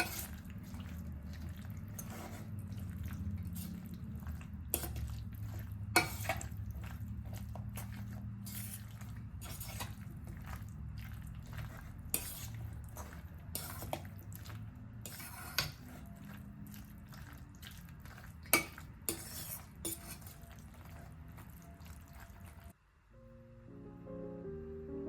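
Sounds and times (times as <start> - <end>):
cutlery and dishes clinking: 4.8 - 6.6
soft instrumental music: 23.1 - 25.0.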